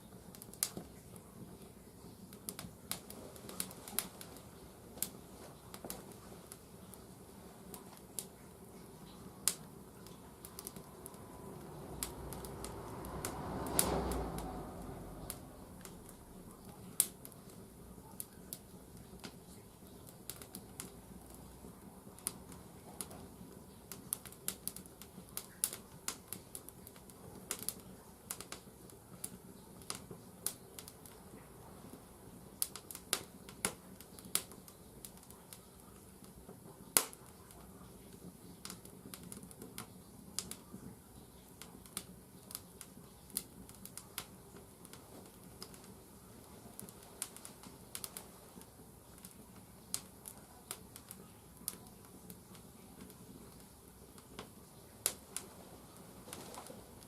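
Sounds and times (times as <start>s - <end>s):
firewood crackling and popping: 0.0s - 57.0s
rush of sound: 11.1s - 16.4s.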